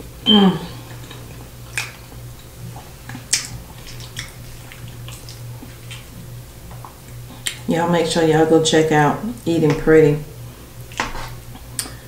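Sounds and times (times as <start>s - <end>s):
low hum: 0.0s - 12.0s
close chewing: 0.9s - 7.6s
wet mouth clicks: 3.2s - 6.1s.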